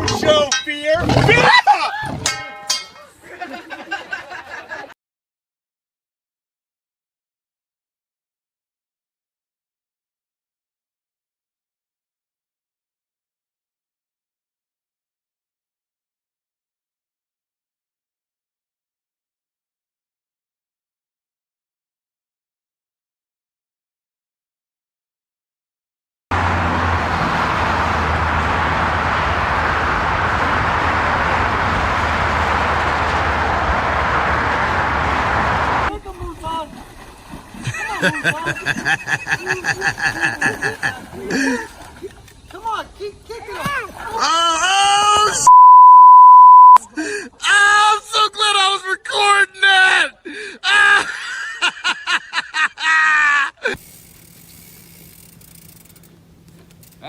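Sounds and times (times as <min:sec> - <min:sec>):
person laughing in high voice: 0:37.7 - 0:41.7, 0:50.6 - 0:53.8.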